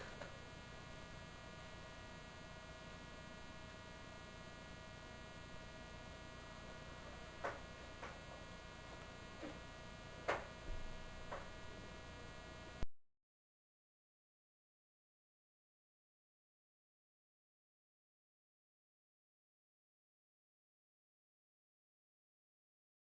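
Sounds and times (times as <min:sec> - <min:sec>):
electrical mains hum: 0:00.0 - 0:12.9.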